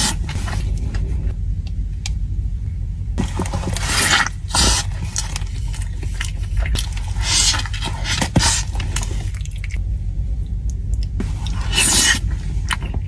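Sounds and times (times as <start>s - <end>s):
wet chewing and smacking: 3.2s - 9.8s, 10.6s - 13.0s.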